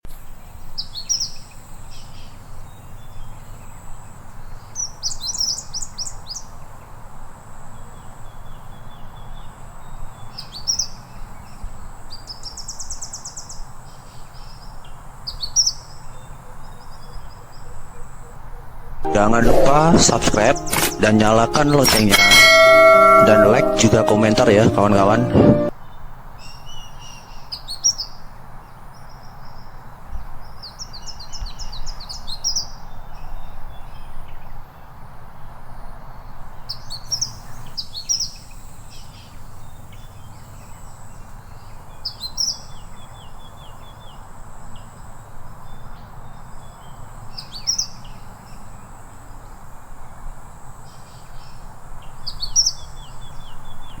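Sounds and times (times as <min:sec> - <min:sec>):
thin steady high tone: 0:19.1 - 0:25.7.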